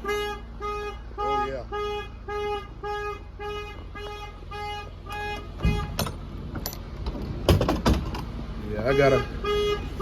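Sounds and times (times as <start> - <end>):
truck reversing alarm beeping: 0.0 - 6.2
idling diesel truck rumble: 0.0 - 10.0
loud knocks: 7.4 - 8.3.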